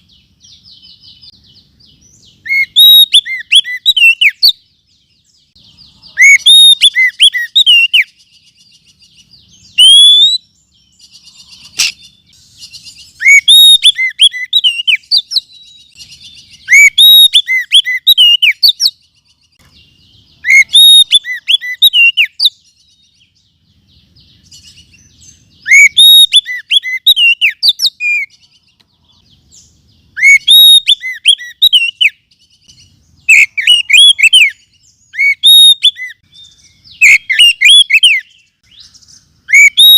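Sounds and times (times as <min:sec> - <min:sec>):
bird whistling song: 0:00.0 - 0:39.9
faint bird twittering: 0:00.0 - 0:39.9.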